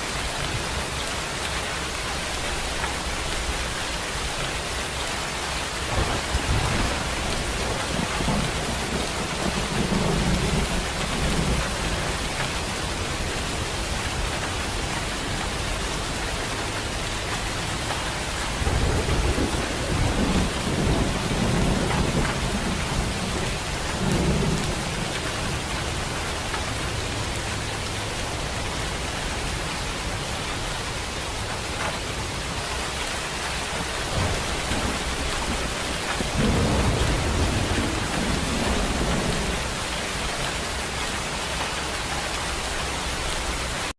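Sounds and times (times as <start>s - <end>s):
heavy rain hissing: 0.0s - 43.9s
low thunder rumbling: 5.8s - 27.6s, 33.5s - 41.0s.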